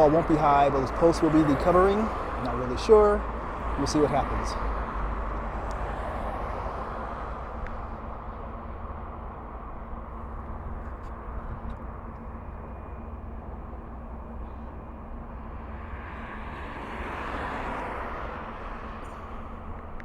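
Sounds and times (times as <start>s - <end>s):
vehicle passing: 0.0s - 9.2s, 14.0s - 20.0s
wind rumble on microphone: 0.0s - 12.9s
passing traffic: 0.0s - 20.0s.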